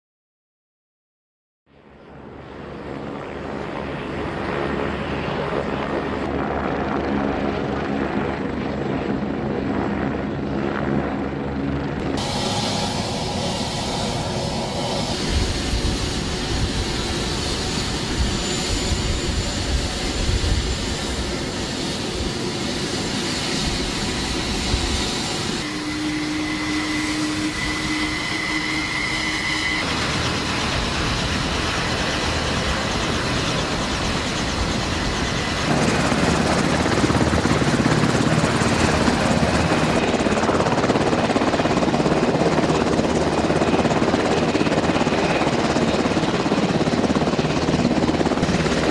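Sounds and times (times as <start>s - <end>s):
drone rotors whirring: 12.2s - 41.5s.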